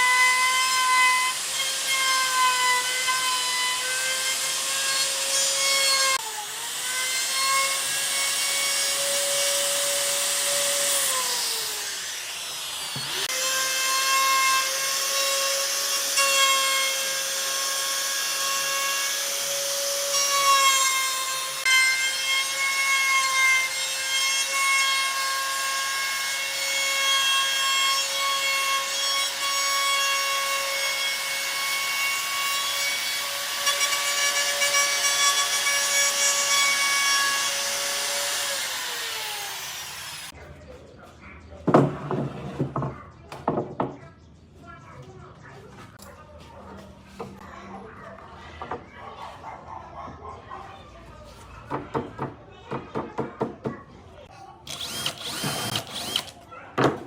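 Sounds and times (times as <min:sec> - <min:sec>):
power tool whining on wood: 0:00.0 - 0:40.3, 0:54.7 - 0:56.3.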